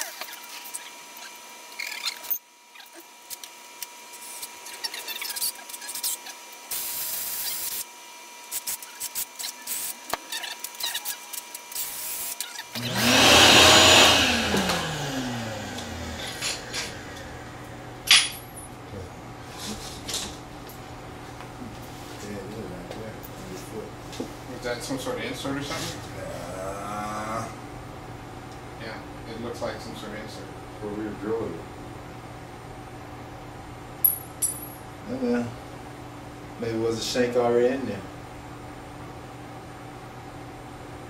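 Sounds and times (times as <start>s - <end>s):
power drill boring into metal: 12.2s - 17.1s.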